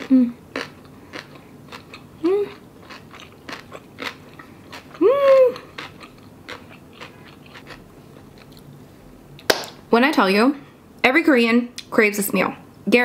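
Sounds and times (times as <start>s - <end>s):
person humming mmm: 0.0s - 0.4s, 2.2s - 2.6s, 4.9s - 5.8s
close chewing with wet clicks: 0.6s - 5.0s, 5.6s - 8.6s.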